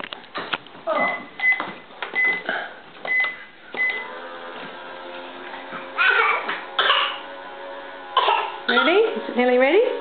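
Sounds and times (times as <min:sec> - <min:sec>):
electronic cooking hum: 0:01.1 - 0:10.0
toy microwave beeping: 0:03.1 - 0:04.1.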